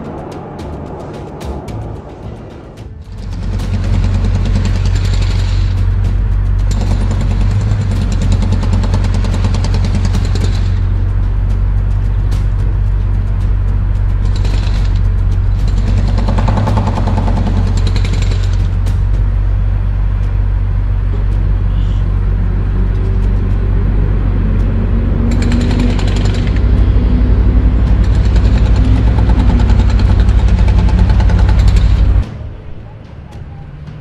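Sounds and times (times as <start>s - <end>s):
heavy machinery hammering: 2.8s - 12.9s, 14.2s - 19.4s, 24.6s - 32.4s.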